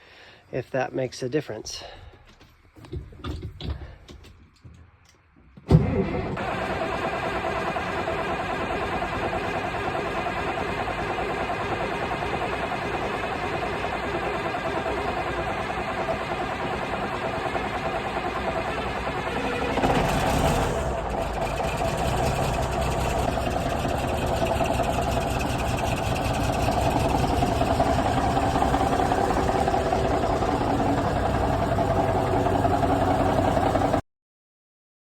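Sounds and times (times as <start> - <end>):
diesel truck engine idling: 6.4 - 34.0.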